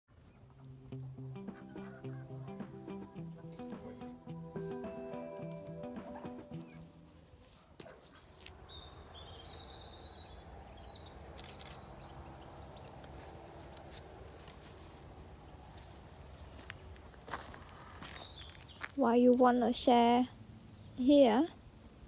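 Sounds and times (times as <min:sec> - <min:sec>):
bird calling high notes: 0:00.9 - 0:07.2.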